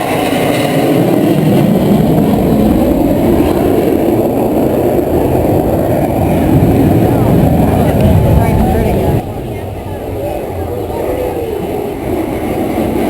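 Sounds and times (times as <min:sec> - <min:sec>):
jet aircraft flying past: 0:00.0 - 0:13.0.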